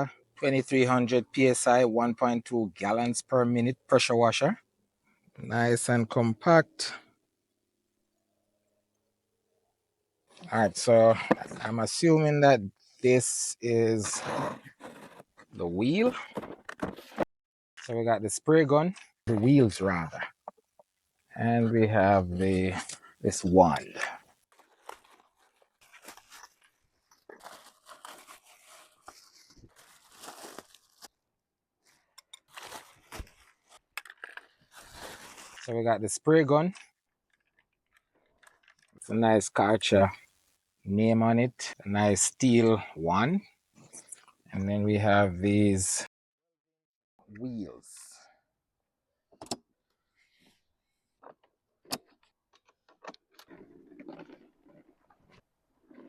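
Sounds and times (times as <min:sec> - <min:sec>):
packaging rustling and crinkling: 0:24.5 - 0:31.2, 0:31.8 - 0:35.6.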